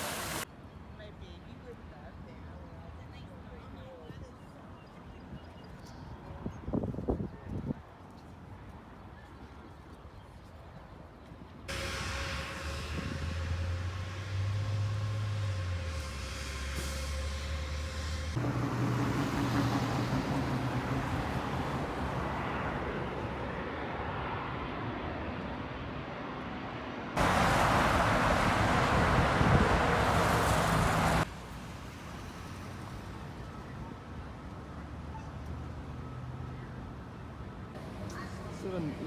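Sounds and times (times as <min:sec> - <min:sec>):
vehicle engine hum: 0:11.7 - 0:23.4, 0:27.2 - 0:33.6.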